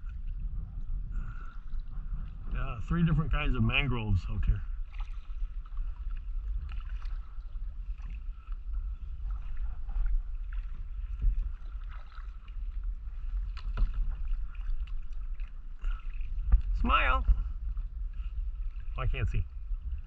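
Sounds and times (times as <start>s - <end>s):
wind on microphone: 0.0s - 20.0s
paddle splashing in water: 4.7s - 20.0s.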